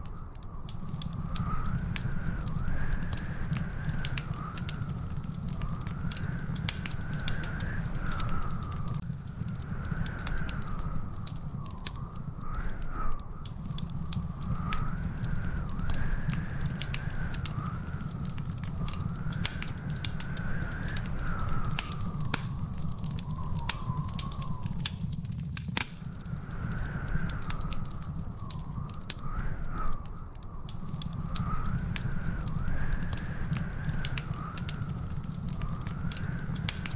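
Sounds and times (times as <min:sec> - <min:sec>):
wood fire crackling and popping: 0:00.0 - 0:36.9
thin wavering whistle: 0:20.5 - 0:25.1.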